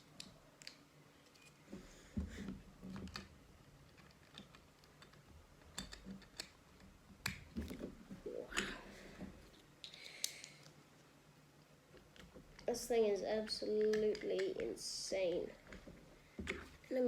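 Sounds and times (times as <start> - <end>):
sharp plastic clicks: 13.5 - 14.8.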